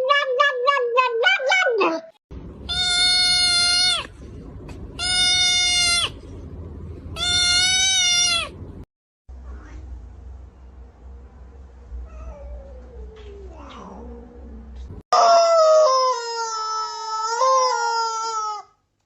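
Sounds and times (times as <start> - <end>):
animal crying: 2.7 - 4.1, 5.0 - 6.2, 7.2 - 8.6, 15.2 - 18.8.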